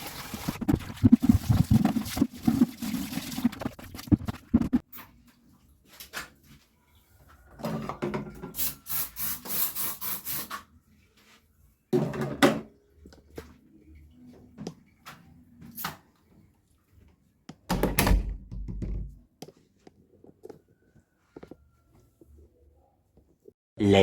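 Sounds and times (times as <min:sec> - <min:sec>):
rubbing or scrubbing: 0:00.0 - 0:04.8.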